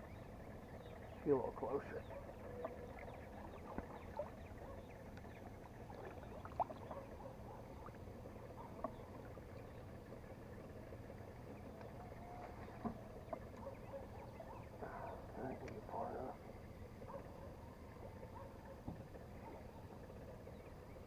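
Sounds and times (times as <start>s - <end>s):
small chirps clicks and drips: 0.0s - 16.5s
distant road traffic: 0.0s - 21.0s.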